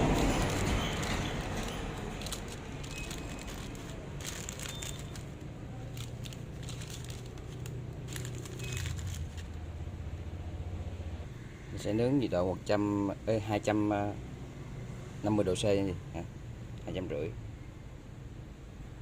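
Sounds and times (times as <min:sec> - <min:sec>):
crinkling handling noises: 0:00.0 - 0:09.8.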